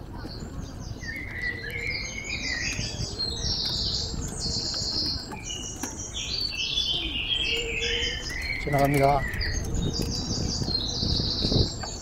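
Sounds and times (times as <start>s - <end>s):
bicycle low rumble: 0.0s - 12.0s
small birds chirping and singing: 0.0s - 12.0s.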